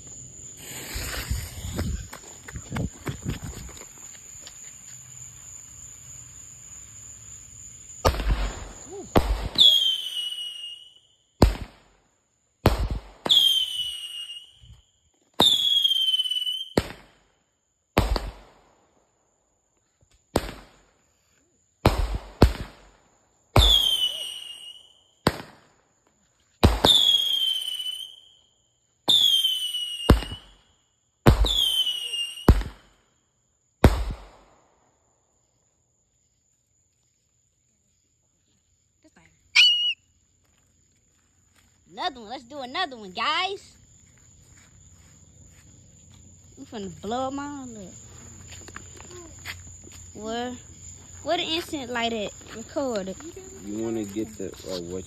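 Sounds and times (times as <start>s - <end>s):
firework shots: 8.0s - 10.6s, 11.4s - 12.0s, 12.6s - 14.4s, 15.4s - 17.3s, 18.0s - 18.8s, 20.3s - 21.0s, 21.8s - 23.0s, 23.6s - 25.8s, 26.6s - 28.2s, 29.1s - 30.6s, 31.2s - 33.0s, 33.8s - 34.7s
falling firework whistle: 8.0s - 11.8s, 12.7s - 17.2s, 23.6s - 25.7s, 26.6s - 30.7s, 31.3s - 33.0s, 39.5s - 40.1s.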